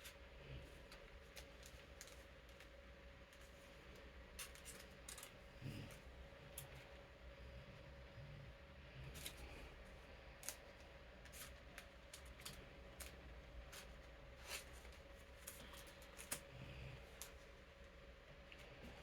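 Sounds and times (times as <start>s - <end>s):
playing cards rustling and clicking: 0.0s - 7.0s, 9.0s - 19.0s
electric fan humming: 0.0s - 19.0s.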